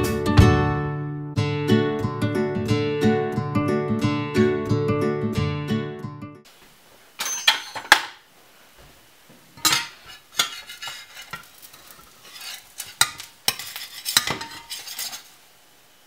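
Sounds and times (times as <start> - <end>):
faint pancake sizzle: 8.3 - 16.0
metal spatula scraping frying pan: 9.6 - 15.4.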